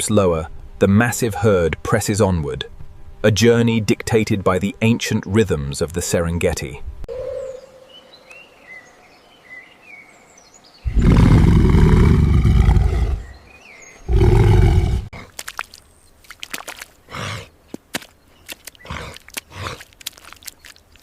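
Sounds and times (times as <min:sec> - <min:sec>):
large animal roaring: 0:10.9 - 0:13.3, 0:14.1 - 0:15.1.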